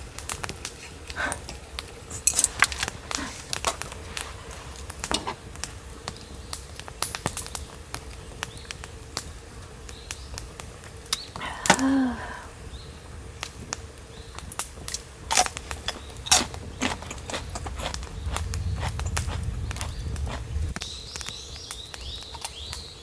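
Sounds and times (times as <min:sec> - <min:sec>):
person humming: 0:11.4 - 0:12.5.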